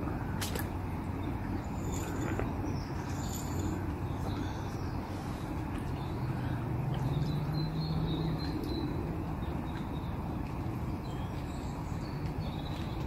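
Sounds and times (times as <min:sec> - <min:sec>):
outdoor background hiss: 0:00.0 - 0:13.0
birds chirping: 0:01.2 - 0:13.0.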